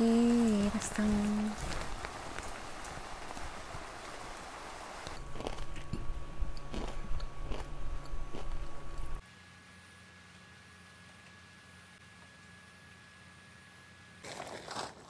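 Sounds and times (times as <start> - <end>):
rain falling on a tent: 0.0 - 5.2
crunchy snack being chewed: 5.1 - 6.0, 6.6 - 9.1.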